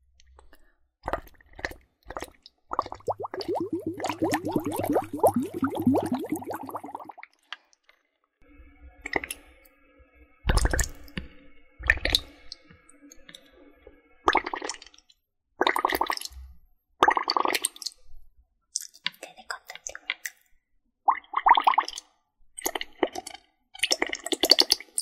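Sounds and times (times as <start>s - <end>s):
water bubbling gurgles: 1.1s - 7.2s
short watery bursts: 2.7s - 7.2s.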